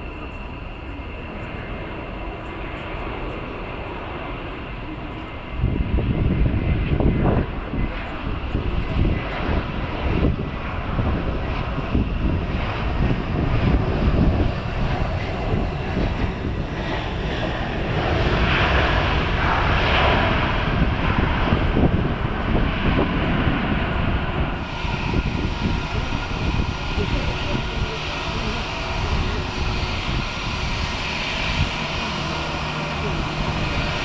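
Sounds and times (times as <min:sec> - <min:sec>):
jet engines rushing: 0:00.0 - 0:34.0.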